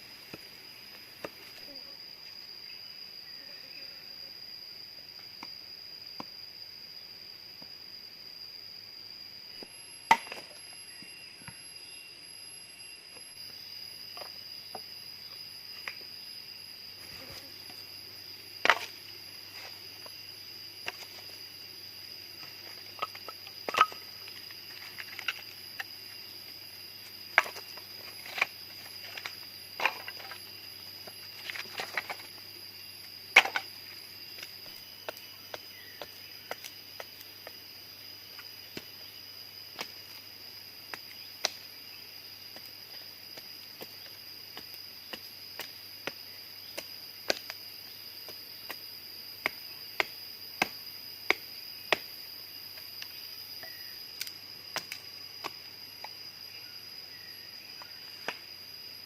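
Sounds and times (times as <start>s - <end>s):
high-pitched insect drone: 6.7s - 36.6s.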